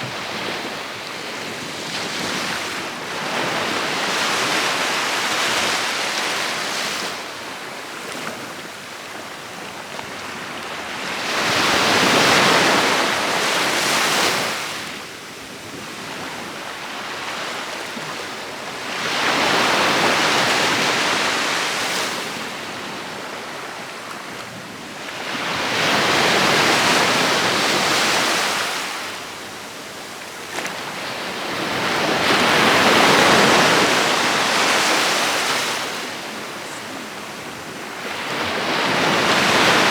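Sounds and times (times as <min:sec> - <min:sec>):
sea waves breaking on beach: 0:16.8 - 0:39.9.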